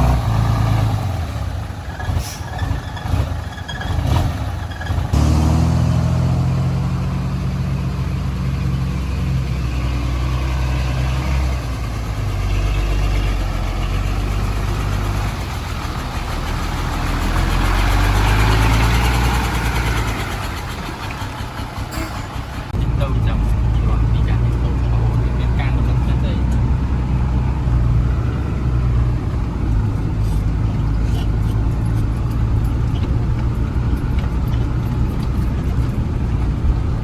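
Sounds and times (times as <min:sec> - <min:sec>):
heavy machine engine running: 0:00.0 - 0:37.0.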